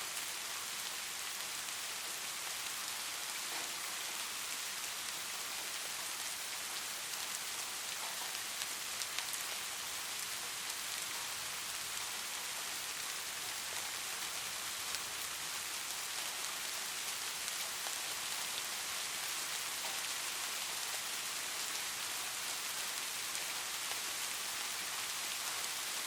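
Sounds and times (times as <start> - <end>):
light rain falling: 0.0 - 26.0.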